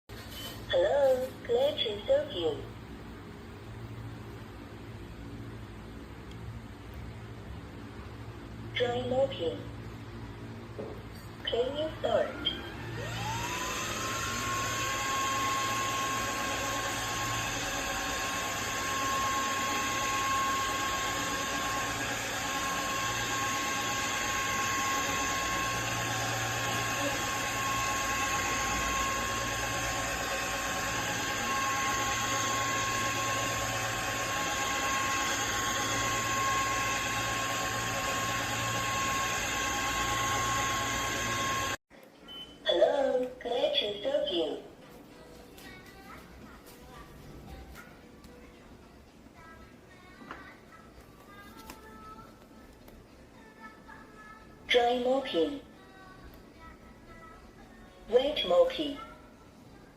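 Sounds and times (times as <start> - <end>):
floor washer motor whine: 0.1 - 41.8.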